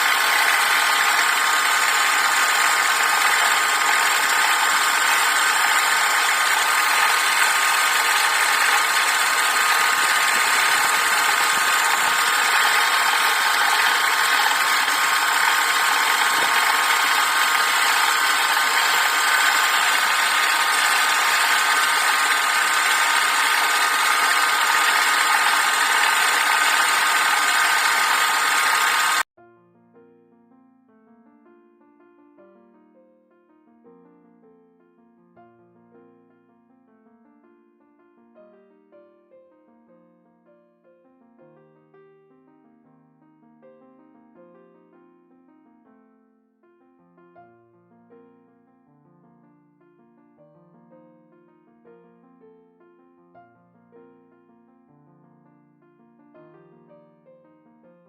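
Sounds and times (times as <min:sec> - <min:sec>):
lathe motor whine: 0:00.0 - 0:29.3
faint piano music: 0:29.4 - 0:58.0.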